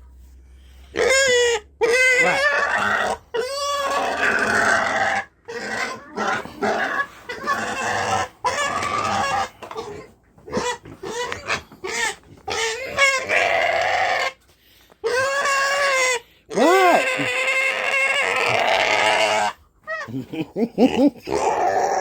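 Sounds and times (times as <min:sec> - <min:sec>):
pig squealing and grunting: 0:00.9 - 0:14.4, 0:15.0 - 0:22.0.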